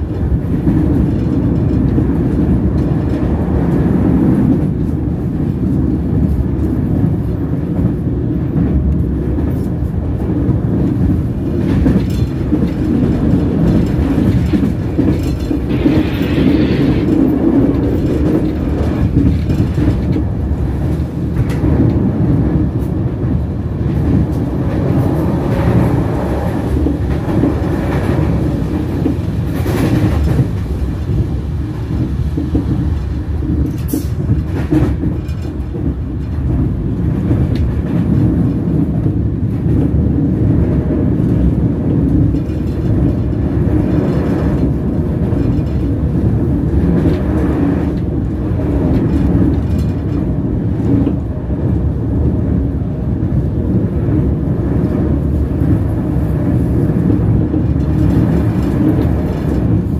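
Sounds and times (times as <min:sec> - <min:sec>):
train wheels rumbling on rails: 0:00.0 - 0:59.9
sharp rail clicks: 0:10.8 - 0:31.2.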